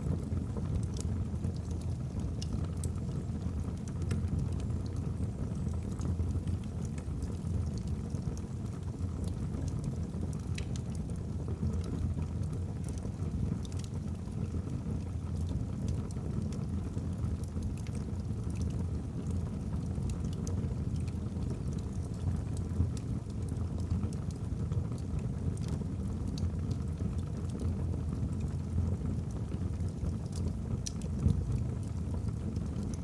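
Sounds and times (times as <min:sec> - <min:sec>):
fire flames rumbling: 0:00.1 - 0:33.0
logs crackling and popping: 0:00.8 - 0:12.2, 0:17.3 - 0:27.8, 0:29.4 - 0:33.0.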